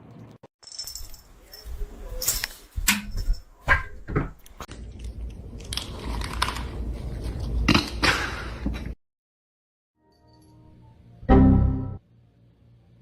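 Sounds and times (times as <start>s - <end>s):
crunching chewing: 4.7s - 7.6s.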